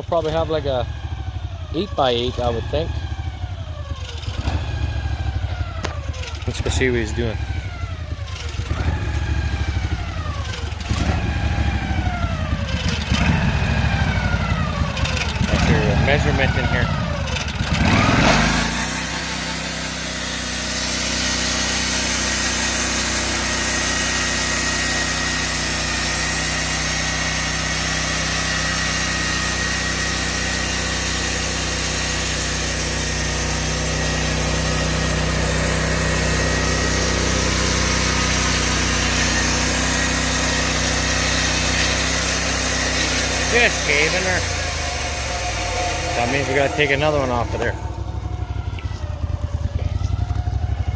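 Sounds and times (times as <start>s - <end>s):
sawmill engine hum: 0.0s - 50.9s
high whine of saw: 1.8s - 50.9s.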